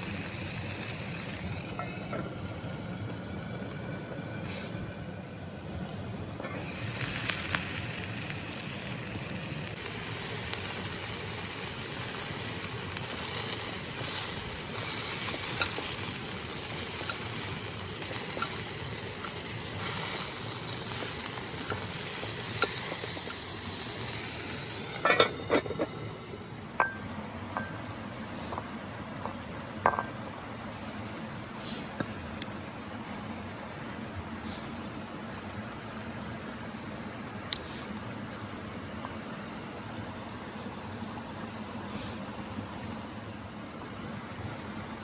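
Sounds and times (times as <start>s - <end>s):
meat sizzling in a pan: 0.0s - 5.1s, 6.4s - 27.0s.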